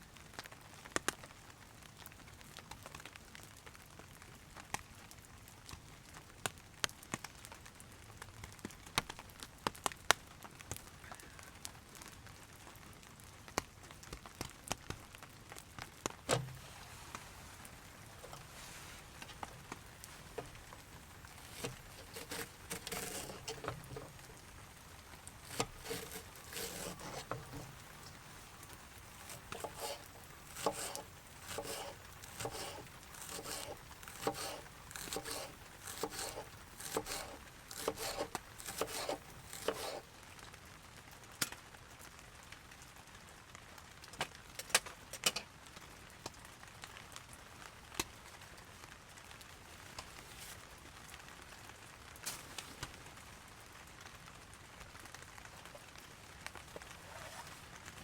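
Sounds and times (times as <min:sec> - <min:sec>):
rain pattering on a tarp: 0:00.0 - 0:21.7, 0:40.0 - 0:58.0
crinkly rustling: 0:14.6 - 0:40.1, 0:49.5 - 0:53.5, 0:55.1 - 0:58.0.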